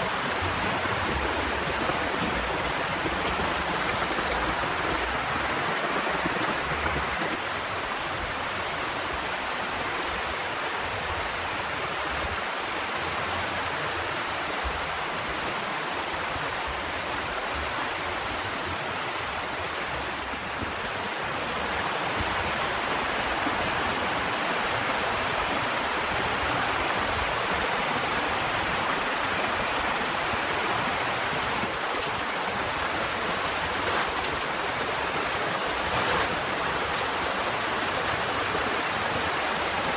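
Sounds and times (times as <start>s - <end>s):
heavy rain falling: 0.0s - 8.3s, 18.3s - 39.9s.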